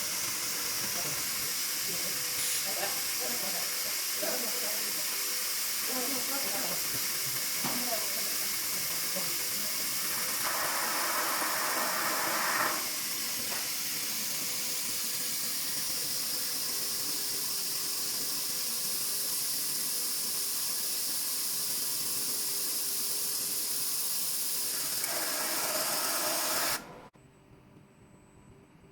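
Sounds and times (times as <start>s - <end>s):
laser marking machine hiss: 0.0s - 27.0s.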